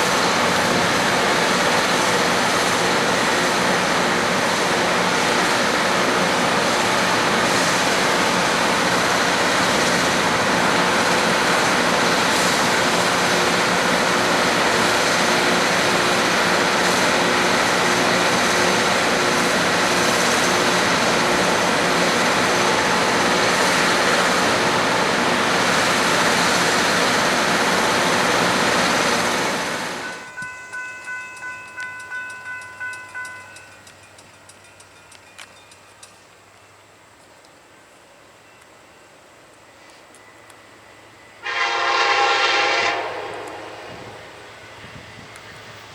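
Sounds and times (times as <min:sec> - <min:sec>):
train passing: 0:00.0 - 0:45.9
railroad crossing bell ringing: 0:29.9 - 0:36.9.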